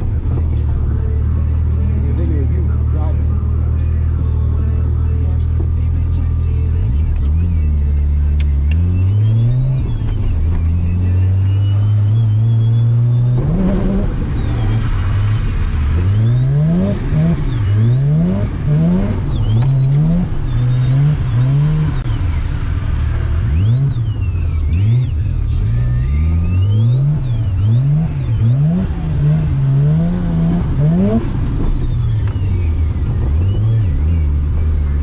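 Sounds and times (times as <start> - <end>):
high whine: 0.0 - 35.0
rotary engine revving hard: 10.8 - 22.1, 23.4 - 32.2.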